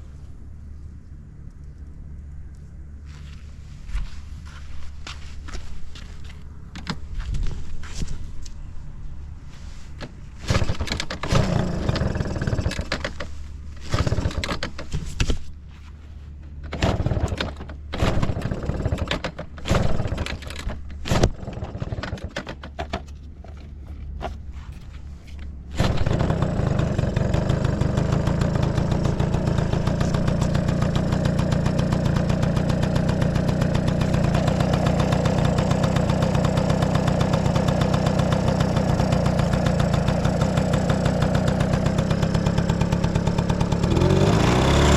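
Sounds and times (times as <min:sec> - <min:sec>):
small engine starting and idling: 0:10.0 - 0:15.5, 0:16.4 - 0:24.4, 0:25.3 - 0:44.9.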